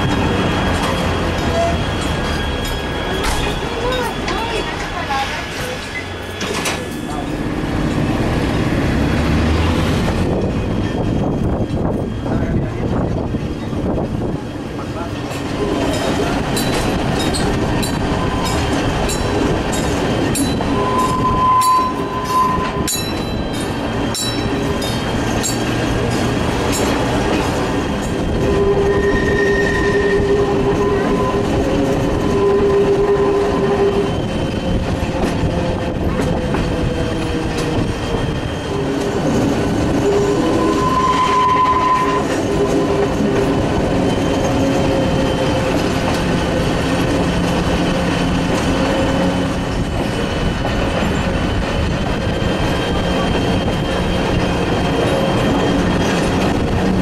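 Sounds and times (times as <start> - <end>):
train rumbling along track: 0.0 - 57.0.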